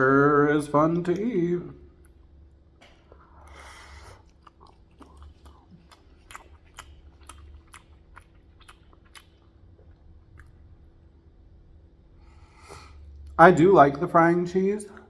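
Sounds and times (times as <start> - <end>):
faint low hum: 0.0 - 15.0
person chewing food: 1.9 - 11.1.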